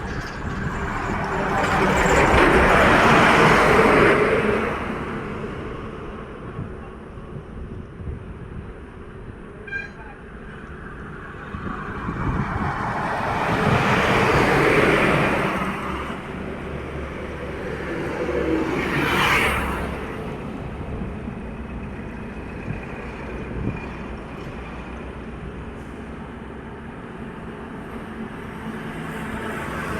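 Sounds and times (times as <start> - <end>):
low traffic rumble: 0.0 - 29.9
vehicles passing: 8.4 - 29.9.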